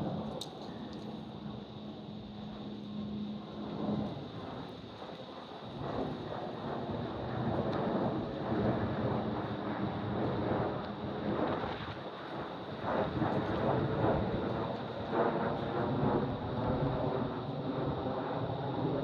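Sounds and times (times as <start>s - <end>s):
aircraft engine rush: 0.0s - 19.0s.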